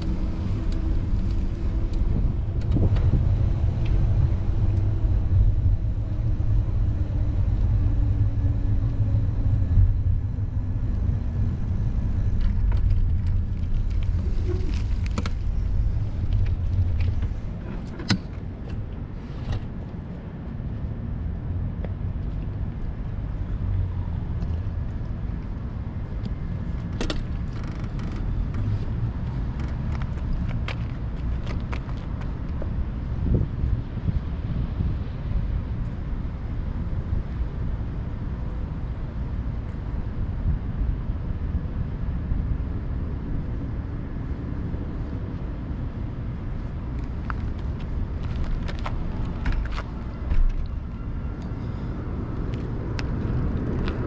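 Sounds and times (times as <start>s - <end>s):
motor vehicle passing: 0.0s - 18.6s
heavy low rumble: 0.0s - 54.0s
steady street noise: 0.0s - 54.0s.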